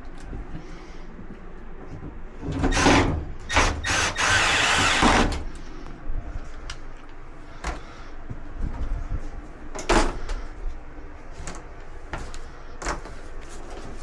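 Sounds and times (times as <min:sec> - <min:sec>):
cordless drill driving screws: 0:02.6 - 0:05.6.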